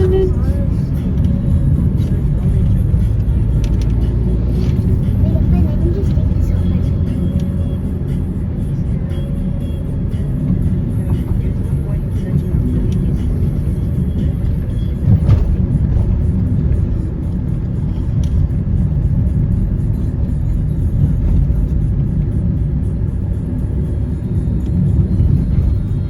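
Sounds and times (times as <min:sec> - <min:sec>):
road vehicle rumble: 0:00.0 - 0:26.0.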